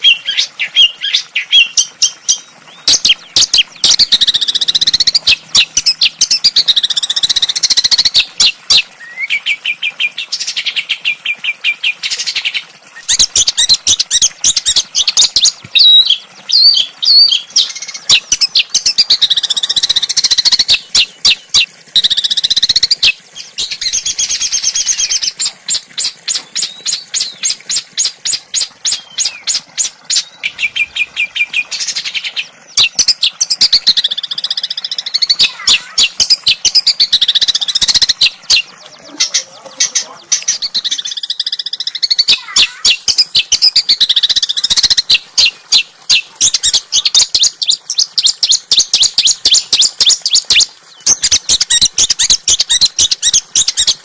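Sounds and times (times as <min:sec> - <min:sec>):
songbird singing trills: 0:00.0 - 0:54.0.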